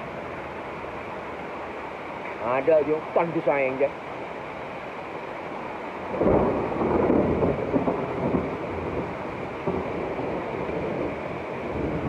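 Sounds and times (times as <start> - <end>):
thunder rumbling: 6.0 - 12.0.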